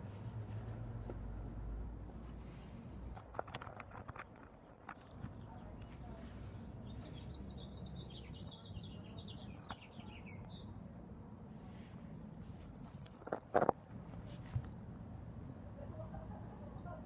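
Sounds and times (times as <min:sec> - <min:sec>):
songbird chirping: 0:04.0 - 0:13.7.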